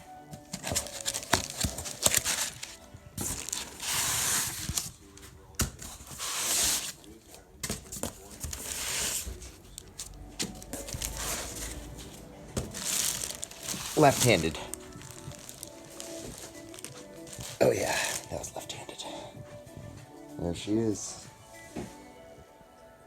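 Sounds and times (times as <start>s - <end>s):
styrofoam rustling and scraping: 0.4s - 18.7s.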